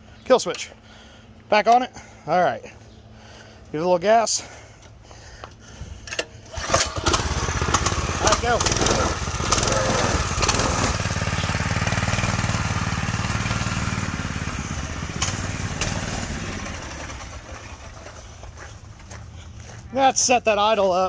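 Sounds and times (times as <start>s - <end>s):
go-kart engine driving off: 6.5s - 19.1s.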